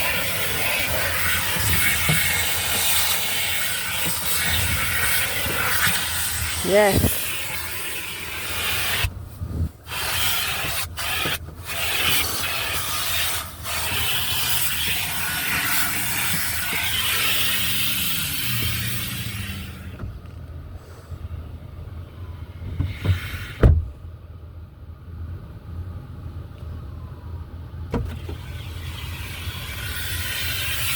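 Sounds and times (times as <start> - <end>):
car wash machinery rushing: 0.0 - 9.1, 9.8 - 20.0, 27.9 - 30.9
thump: 22.7 - 24.0.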